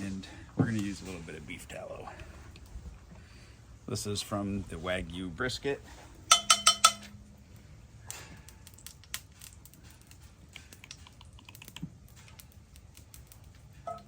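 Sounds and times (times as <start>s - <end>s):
fat crackling in a pan: 5.4s - 14.0s.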